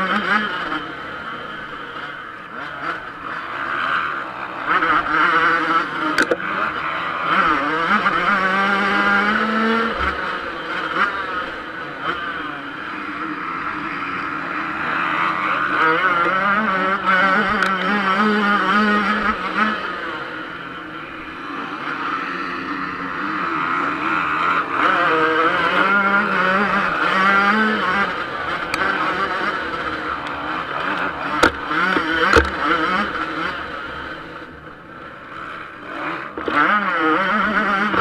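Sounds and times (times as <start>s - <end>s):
motocross bike engine revving: 0.0s - 38.0s
sharp knocks: 31.3s - 32.6s.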